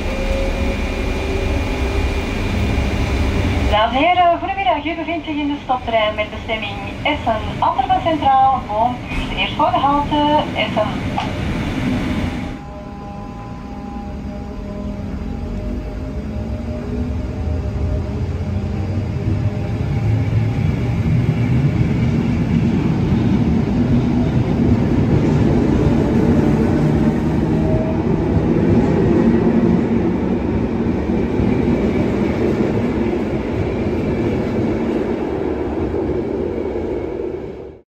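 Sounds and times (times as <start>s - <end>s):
train wheels rumbling on rail: 0.0s - 12.6s, 14.9s - 37.8s.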